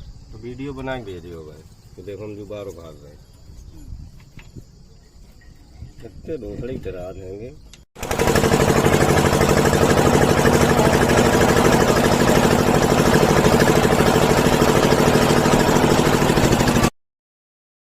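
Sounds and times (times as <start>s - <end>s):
diesel engine idling: 8.0s - 16.9s.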